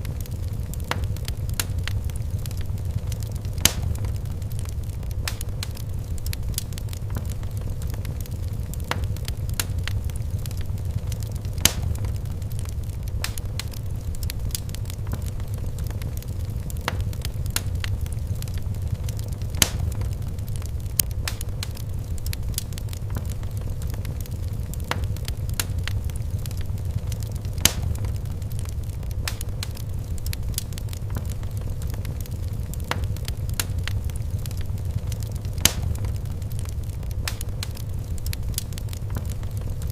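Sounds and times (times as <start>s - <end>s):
fireplace crackling and popping: 0.0s - 39.9s.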